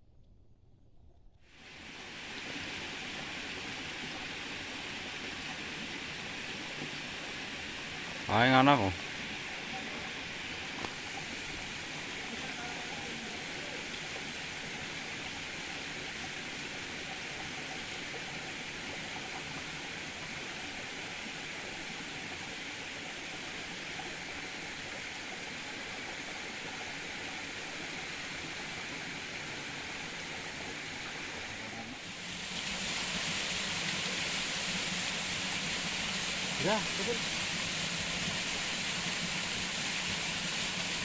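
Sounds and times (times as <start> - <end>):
river water rushing: 29.8 - 41.0.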